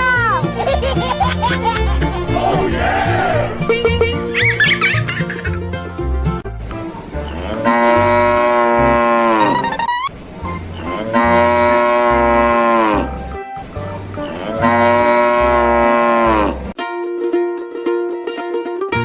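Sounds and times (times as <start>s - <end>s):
music with bass beat: 3.6s - 4.6s
cow mooing: 7.3s - 9.6s, 10.8s - 13.2s, 14.2s - 16.7s.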